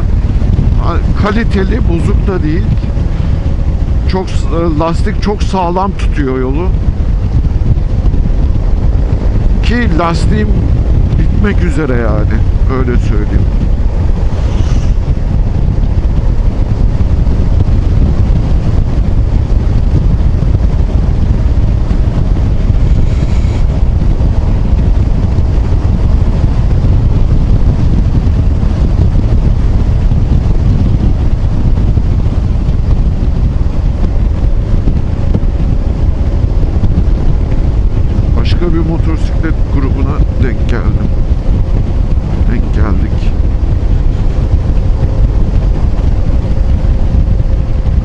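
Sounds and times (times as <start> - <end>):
scooter engine and tyre noise: 0.0 - 48.0
wind rumble on microphone: 0.0 - 48.0.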